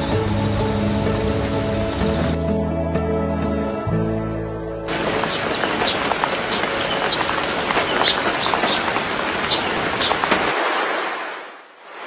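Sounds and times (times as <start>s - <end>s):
heavy rain falling: 0.0s - 2.4s, 4.9s - 12.0s
raindrops ticking: 4.9s - 10.5s.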